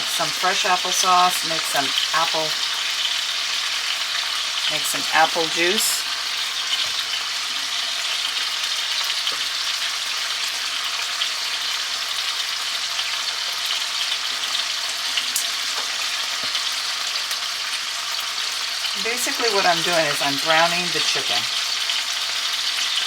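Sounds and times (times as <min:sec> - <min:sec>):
chicken frying in oil: 0:00.0 - 0:23.0.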